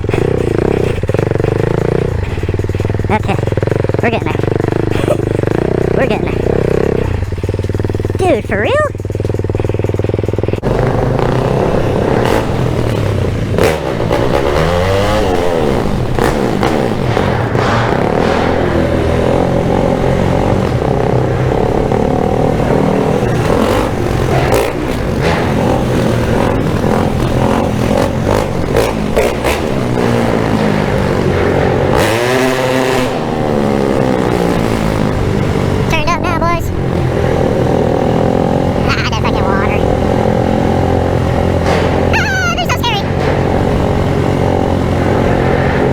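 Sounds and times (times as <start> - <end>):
motorcycle engine revving: 0.0 - 45.9
knocks and scrapes: 9.2 - 36.0, 37.0 - 45.9.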